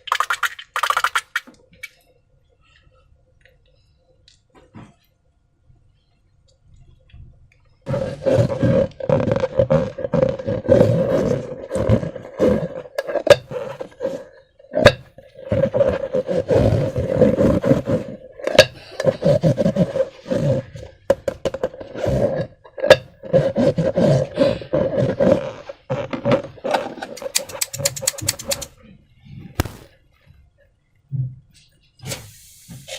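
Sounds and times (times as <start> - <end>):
slime and balloons squelching: 0.0 - 1.5, 7.9 - 20.8, 22.9 - 28.7
sharp rubber snaps: 27.2 - 28.7, 29.6 - 29.9.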